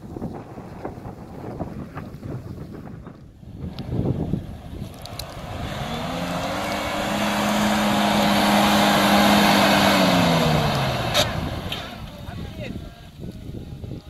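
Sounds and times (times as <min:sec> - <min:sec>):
engine revving hard: 0:03.6 - 0:12.1.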